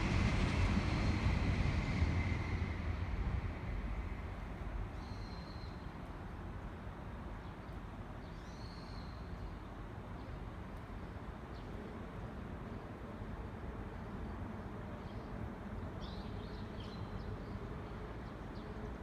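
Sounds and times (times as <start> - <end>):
low outdoor rumble: 0.0 - 5.0.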